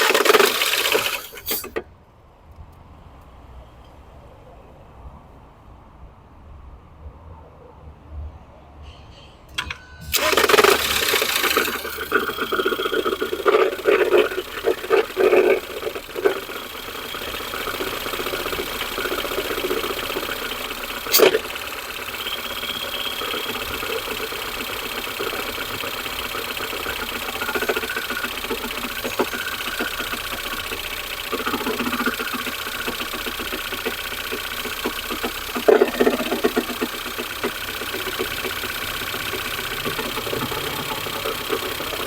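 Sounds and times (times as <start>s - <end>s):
car engine idling: 0.0s - 1.8s, 10.0s - 42.0s
car engine starting with clatter: 0.0s - 1.9s, 9.5s - 42.0s
sharp engine knock: 10.1s - 42.0s.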